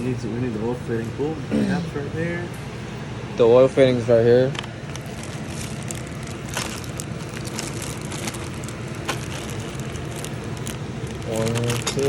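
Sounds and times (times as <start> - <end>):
steady low hum: 0.0 - 12.0
packaging rustling: 4.5 - 12.0.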